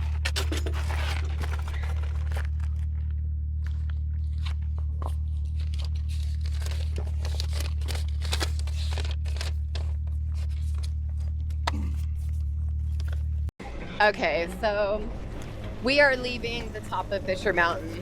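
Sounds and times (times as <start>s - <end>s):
crinkling and tearing: 0.0s - 13.4s
rustles and clicks: 0.0s - 13.5s
steady low hum: 0.0s - 18.0s.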